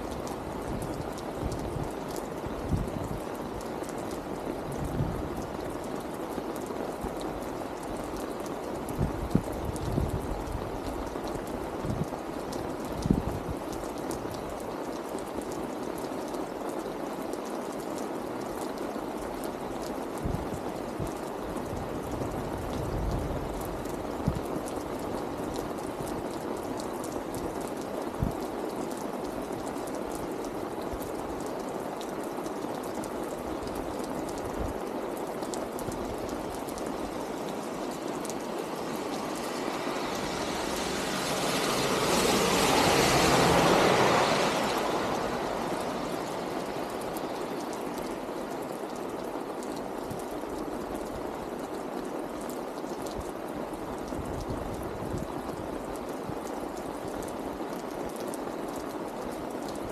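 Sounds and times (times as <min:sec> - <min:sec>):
sharp water drips: 0:00.0 - 0:59.9
steady rain falling: 0:00.0 - 0:59.9
car tyres hissing on wet road: 0:18.0 - 0:50.8.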